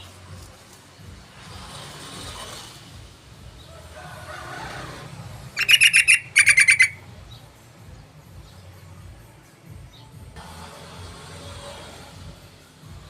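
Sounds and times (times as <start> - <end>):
bird chattering: 5.6 - 7.0.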